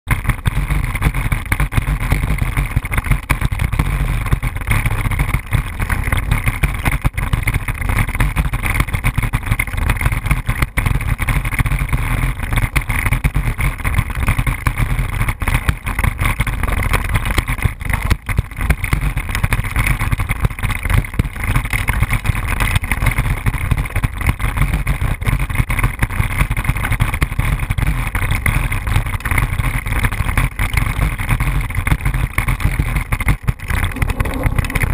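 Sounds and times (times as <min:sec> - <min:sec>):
wind buffeting microphone: 0:33.9 - 0:34.9.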